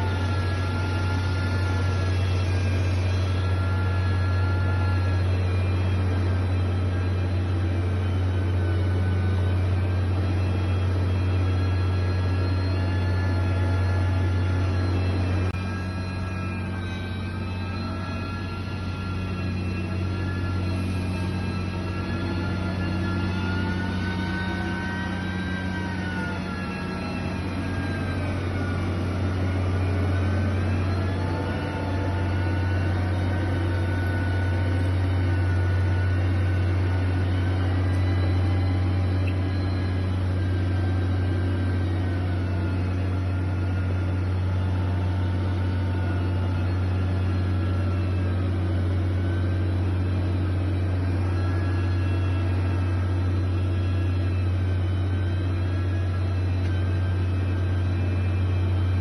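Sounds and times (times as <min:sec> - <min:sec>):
heavy machine engine humming: 0:00.0 - 0:59.0.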